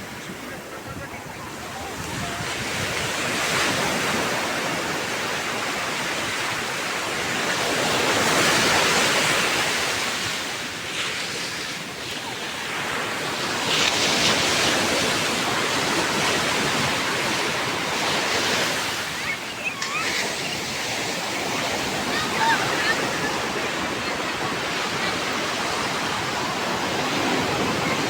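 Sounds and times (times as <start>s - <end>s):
sea surf breaking: 0.0s - 28.0s.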